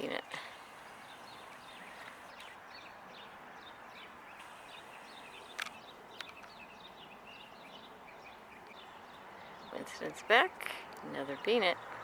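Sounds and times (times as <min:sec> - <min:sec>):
small birds chirping: 0:00.0 - 0:12.0
sharp clicks: 0:04.4 - 0:06.6.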